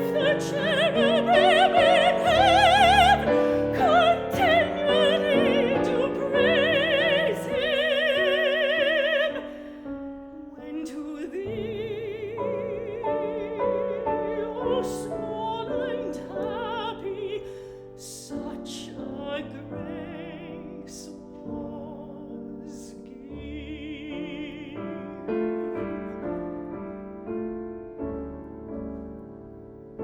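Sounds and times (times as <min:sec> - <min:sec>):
singer with wide vibrato: 0:00.0 - 0:09.7
piano accompaniment: 0:00.0 - 0:30.0.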